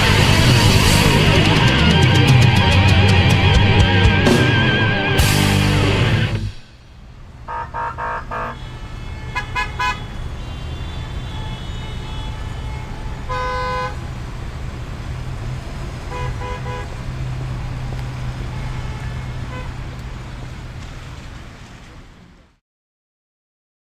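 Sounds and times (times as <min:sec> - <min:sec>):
road traffic: 0:00.0 - 0:22.6
car horns honking: 0:07.3 - 0:14.2, 0:15.9 - 0:17.4, 0:18.1 - 0:20.2.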